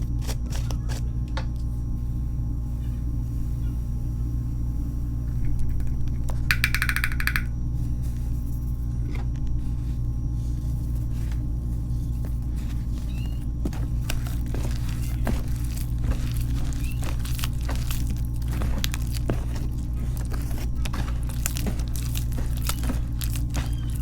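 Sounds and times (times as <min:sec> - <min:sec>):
steady low hum: 0:00.0 - 0:24.0
faint crunches and clicks: 0:11.2 - 0:24.0.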